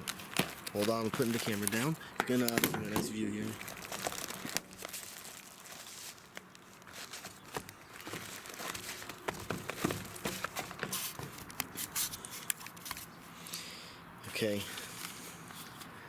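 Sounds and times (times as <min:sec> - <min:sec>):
cardboard packaging rustling: 0:00.0 - 0:13.2.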